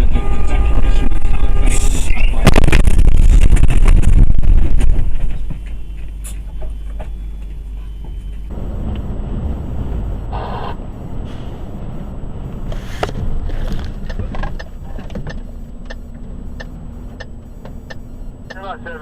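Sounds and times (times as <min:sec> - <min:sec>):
vehicle engine and road noise: 0:00.0 - 0:19.0
short pitched beep: 0:14.7 - 0:19.0.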